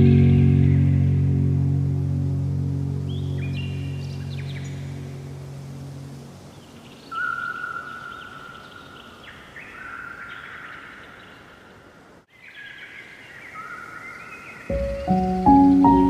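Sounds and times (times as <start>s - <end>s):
songbirds singing: 3.0s - 16.0s.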